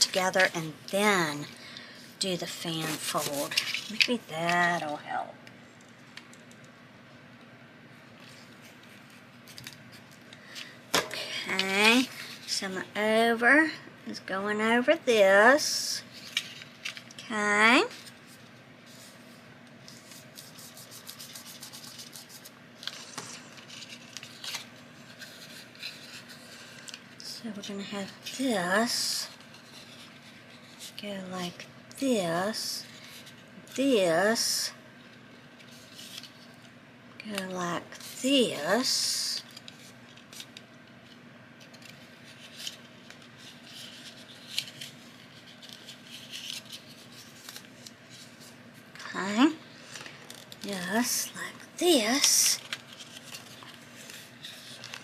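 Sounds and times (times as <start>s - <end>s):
paper rustling and crinkling: 2.4s - 5.0s, 8.1s - 10.8s, 16.0s - 17.2s, 17.8s - 31.6s, 35.0s - 36.7s, 38.8s - 48.7s, 49.8s - 55.0s.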